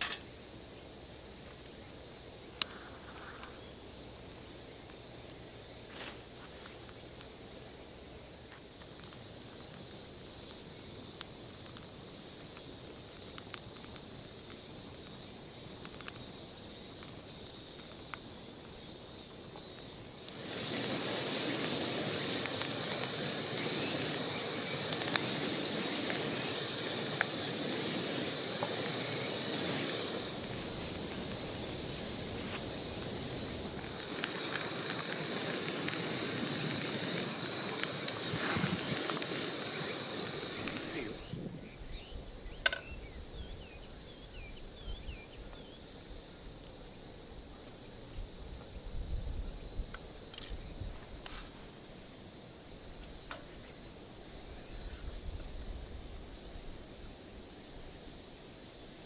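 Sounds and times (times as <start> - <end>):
straw fire roaring and crackling: 0.0 - 45.3.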